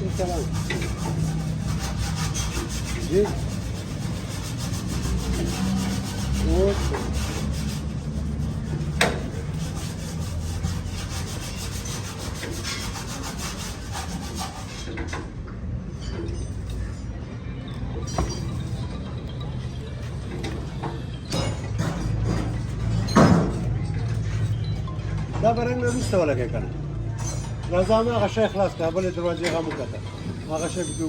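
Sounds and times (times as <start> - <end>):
sanding rubbing on car panel: 0.0 - 15.0.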